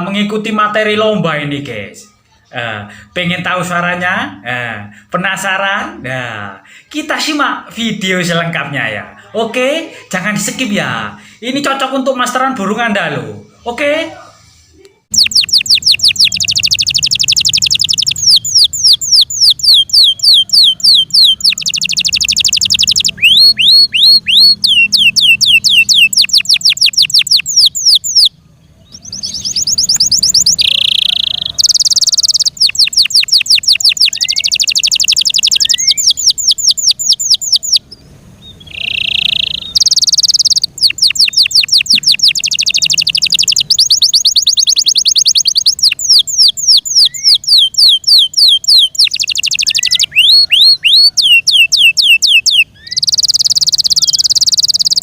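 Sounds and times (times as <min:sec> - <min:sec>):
canary singing trills: 0:15.0 - 0:55.0.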